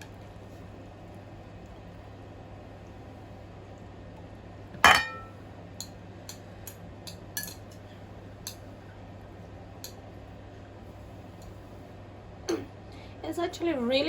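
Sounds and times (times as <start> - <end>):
utensils knocking against bowl: 4.8 - 5.3.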